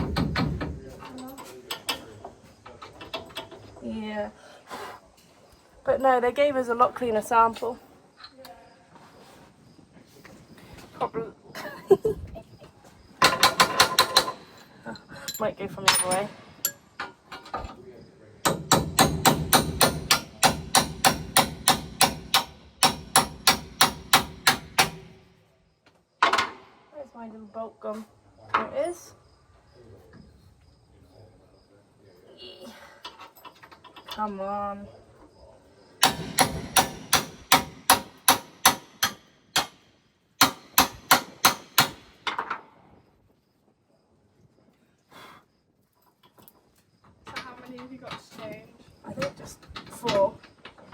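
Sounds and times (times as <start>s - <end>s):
hammer striking metal: 18.5s - 25.1s, 36.0s - 39.8s, 40.4s - 42.1s.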